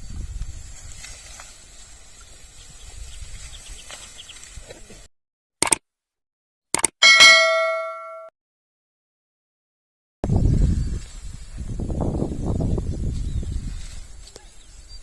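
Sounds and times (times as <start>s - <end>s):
faint outdoor field noise: 0.0s - 5.1s
short clicks: 5.6s - 5.8s, 6.7s - 7.0s
metallic bell ding: 7.0s - 8.3s.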